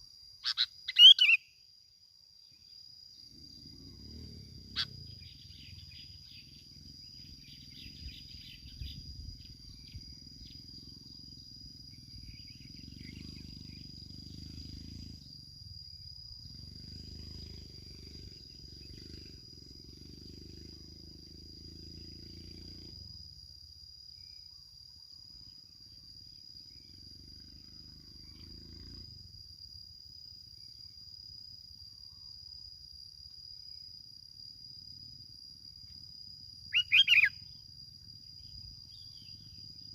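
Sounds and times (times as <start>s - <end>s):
faint chirps: 0.0s - 1.7s, 2.4s - 15.3s, 36.6s - 37.7s
cricket trilling: 0.0s - 39.9s.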